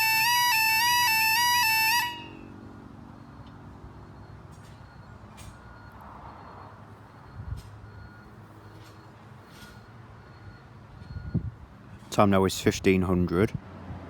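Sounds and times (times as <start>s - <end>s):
level crossing alarm warble: 0.0s - 3.4s.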